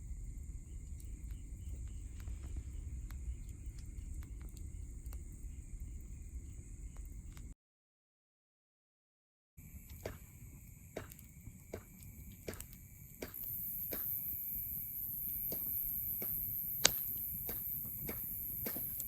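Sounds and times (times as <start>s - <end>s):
wood fire crackling: 0.0s - 7.5s, 9.6s - 19.0s
steady high hiss: 9.6s - 19.0s.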